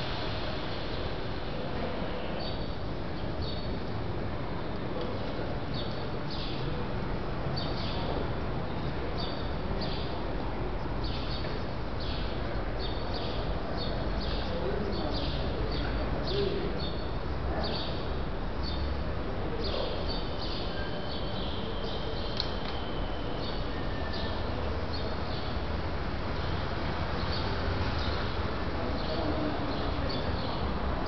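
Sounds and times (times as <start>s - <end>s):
small birds chirping: 27.2s - 30.6s.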